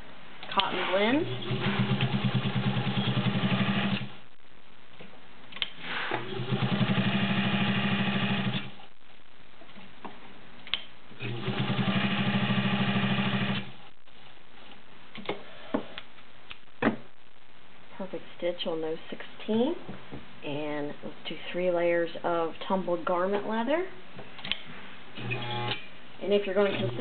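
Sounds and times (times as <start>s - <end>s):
sewing machine stitching: 0.6s - 4.1s, 5.9s - 8.7s, 11.2s - 13.7s.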